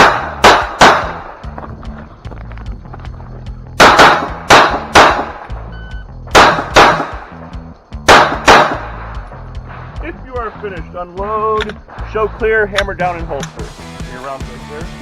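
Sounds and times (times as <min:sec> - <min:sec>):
pistol shots: 0:00.0 - 0:01.4, 0:03.8 - 0:05.5, 0:06.3 - 0:07.4, 0:08.0 - 0:09.2.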